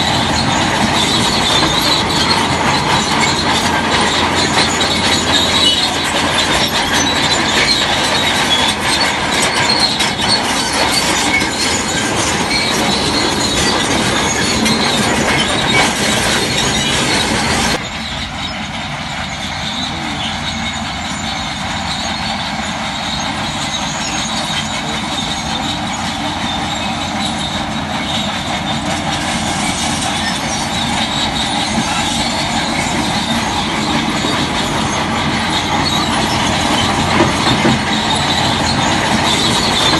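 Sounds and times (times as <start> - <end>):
bulldozer diesel engine: 0.0 - 39.9
steel tracks squealing and clanking: 0.0 - 39.9.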